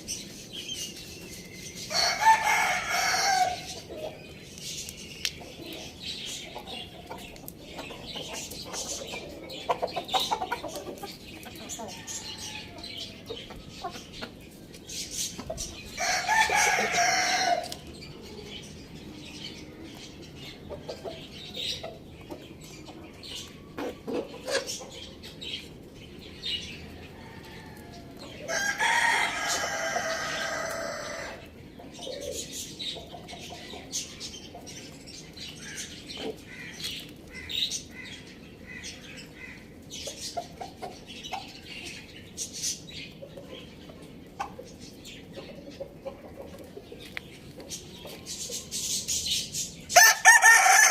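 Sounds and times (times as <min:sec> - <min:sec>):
chickens clucking: 0:00.0 - 0:50.9
rooster crowing: 0:01.9 - 0:03.7, 0:16.0 - 0:17.7, 0:28.5 - 0:31.4, 0:50.0 - 0:50.9.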